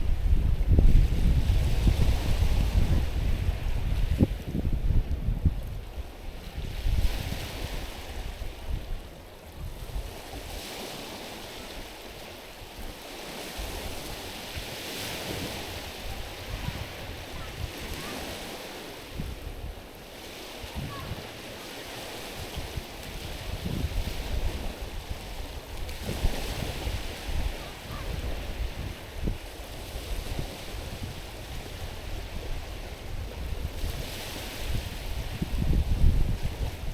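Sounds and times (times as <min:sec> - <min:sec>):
wind buffeting microphone: 0:00.0 - 0:12.0, 0:12.8 - 0:36.9
waves washing over stones: 0:09.8 - 0:36.9.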